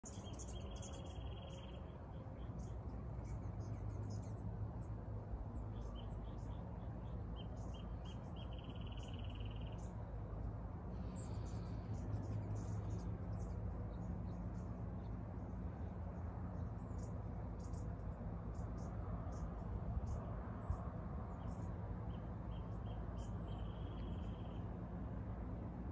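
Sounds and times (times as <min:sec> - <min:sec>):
small birds chirping: 0:00.0 - 0:10.2, 0:10.9 - 0:24.7
low background rumble: 0:00.0 - 0:25.9
rapid bird trill: 0:07.4 - 0:09.9, 0:22.5 - 0:24.6.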